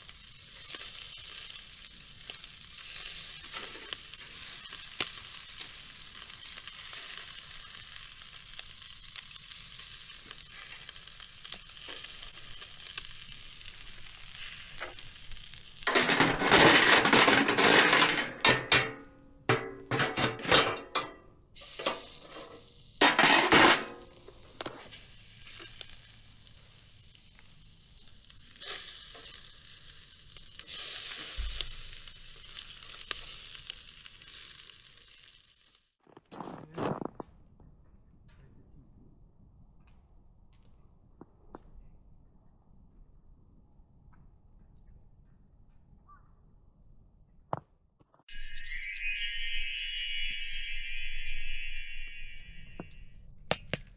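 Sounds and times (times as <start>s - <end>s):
food sizzling in a frying pan: 0.0s - 16.6s, 21.6s - 35.9s, 48.3s - 53.0s.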